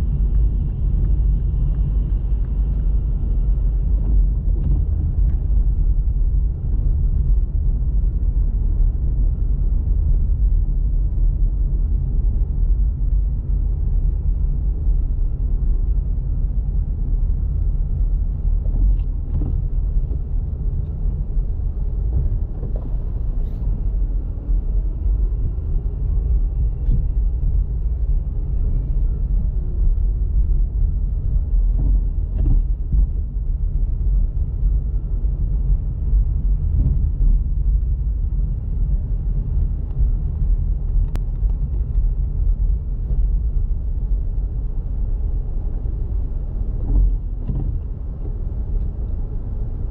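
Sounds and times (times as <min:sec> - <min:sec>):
car engine and road noise: 0:00.0 - 0:49.9.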